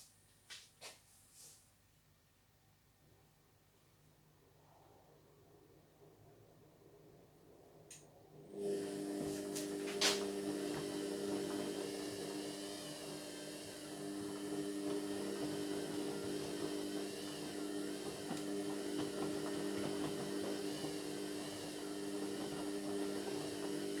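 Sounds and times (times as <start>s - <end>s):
washing machine motor hum: 8.4s - 24.0s.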